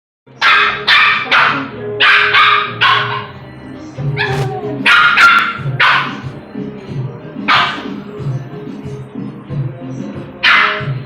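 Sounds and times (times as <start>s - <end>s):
dog barking: 0.4s - 3.4s, 4.2s - 6.4s, 7.5s - 8.0s, 10.4s - 11.0s.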